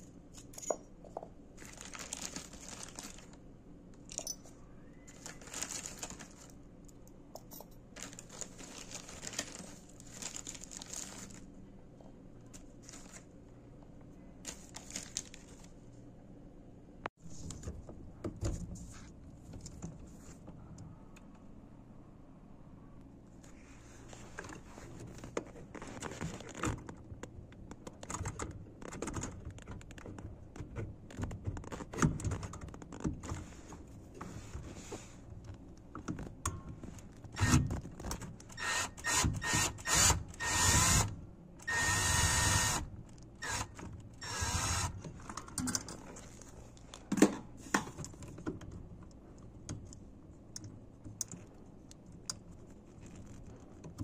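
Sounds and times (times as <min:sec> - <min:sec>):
power drill running in bursts: 0:41.7 - 0:42.8.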